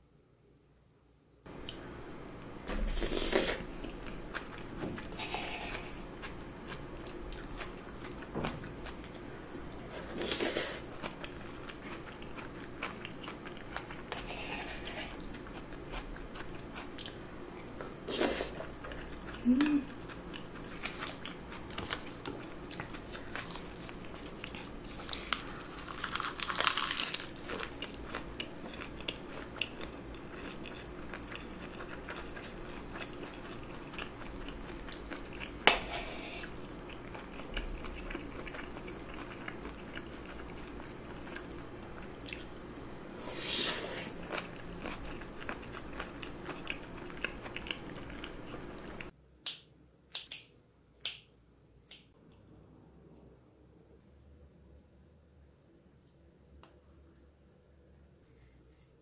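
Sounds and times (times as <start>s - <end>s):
chewing and mouth sounds: 18.5s - 42.9s, 44.1s - 51.3s.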